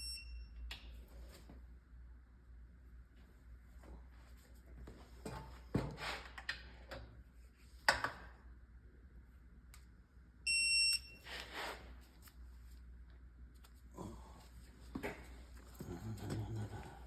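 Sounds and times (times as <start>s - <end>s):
electronic beep: 0.0s - 0.5s.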